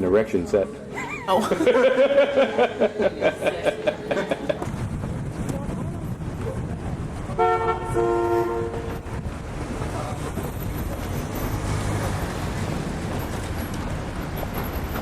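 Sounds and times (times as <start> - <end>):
street traffic rumbling: 0.0 - 15.0
vehicle horn honking: 7.3 - 9.0.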